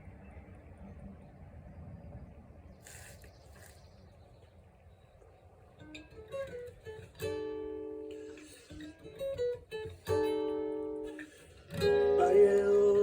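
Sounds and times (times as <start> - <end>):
acoustic guitar picking and strumming: 5.8 - 13.0.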